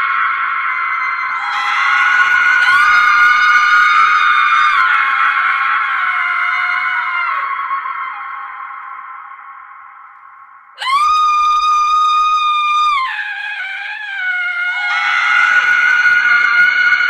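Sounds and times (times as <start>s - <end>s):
woman screaming: 1.4s - 7.6s, 10.8s - 16.8s.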